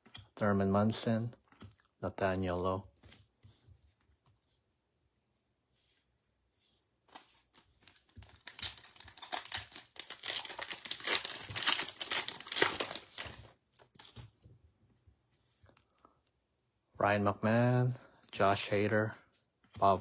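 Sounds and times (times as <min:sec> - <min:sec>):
wrapper tearing and crinkling: 0:07.8 - 0:14.2.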